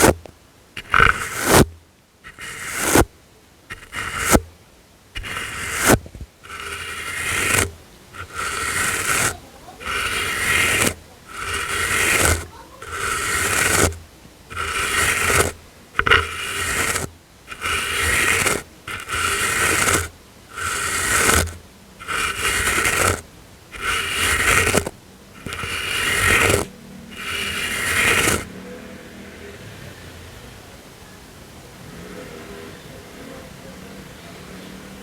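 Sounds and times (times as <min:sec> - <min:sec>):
brush swishing across microphone: 0:00.0 - 0:03.1, 0:03.7 - 0:04.5, 0:05.2 - 0:23.2, 0:23.8 - 0:28.5.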